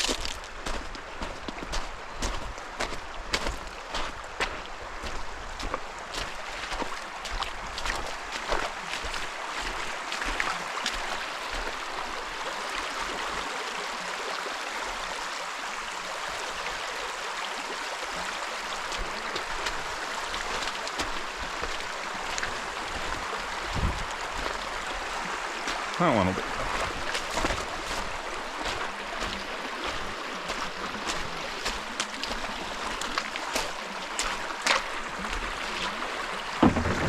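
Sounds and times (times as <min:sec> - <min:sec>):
creek water rushing: 0:00.0 - 0:37.0
light knocks on kayak: 0:36.6 - 0:37.0.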